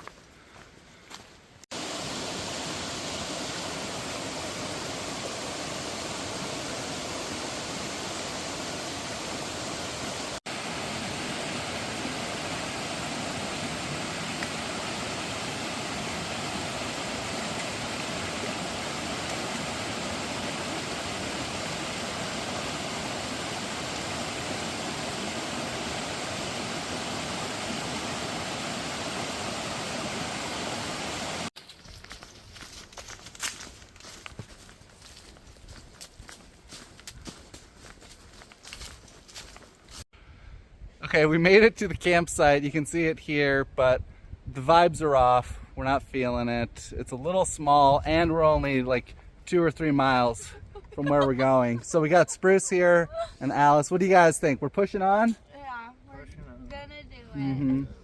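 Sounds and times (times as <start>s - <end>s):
waterfall roaring: 1.8s - 31.5s.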